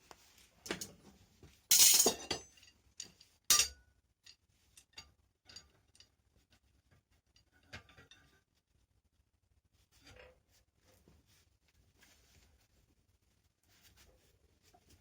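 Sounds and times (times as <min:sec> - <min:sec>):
metal objects clinking and clattering: 0:01.7 - 0:03.8.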